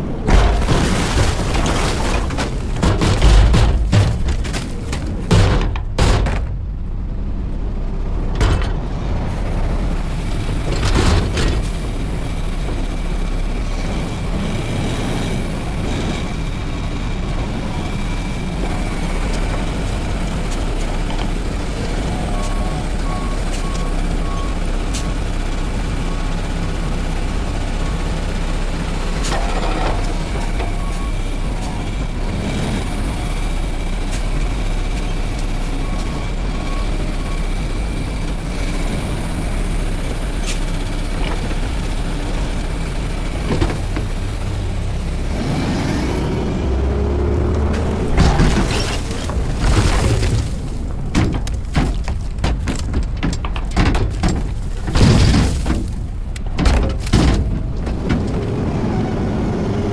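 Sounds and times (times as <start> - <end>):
truck diesel engine running: 0.0 - 59.9
knocks: 0.3 - 6.6.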